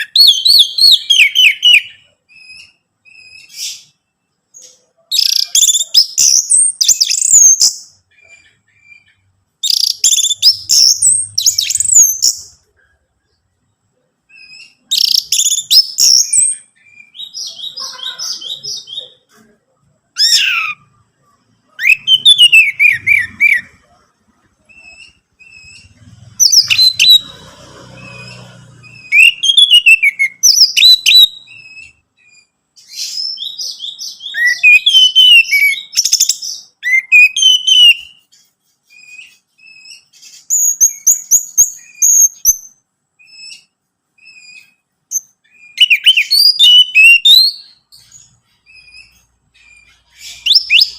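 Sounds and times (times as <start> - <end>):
thrush whistled song: 21.8 - 23.8, 28.1 - 38.3, 38.9 - 50.9.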